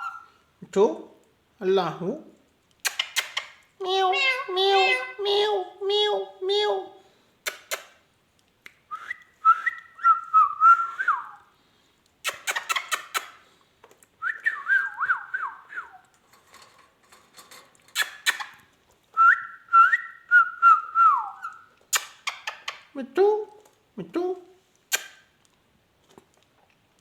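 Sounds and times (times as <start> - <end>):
parrot whistling: 0.0 - 0.4
sharp clicking: 2.7 - 3.6.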